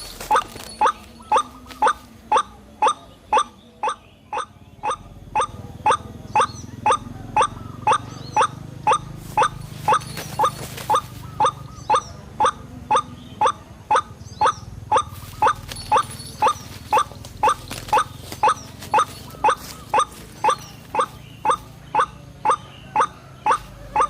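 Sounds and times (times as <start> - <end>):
waterhen calling: 0.0 - 24.0.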